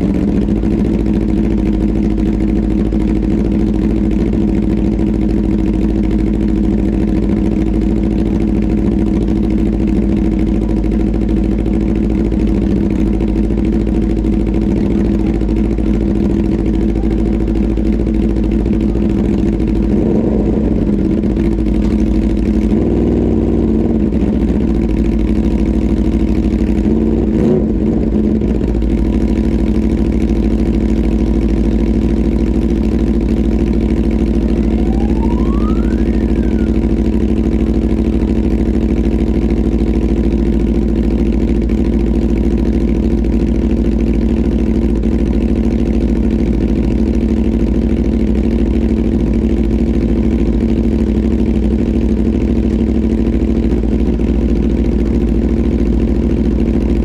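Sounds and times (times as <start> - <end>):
motorcycle engine idling: 0.0 - 57.0
thin rising whine: 34.2 - 37.3.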